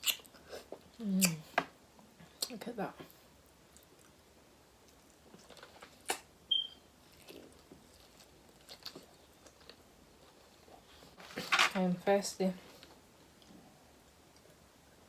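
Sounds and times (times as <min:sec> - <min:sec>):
quiet chewing: 0:00.0 - 0:11.5
brief high squeak: 0:06.5 - 0:06.8.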